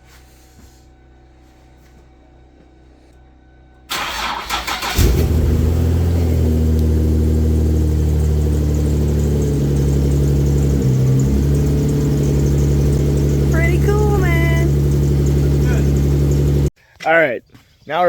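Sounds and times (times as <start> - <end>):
car engine cranking on starter: 3.9 - 16.7
car engine idling: 3.9 - 16.7.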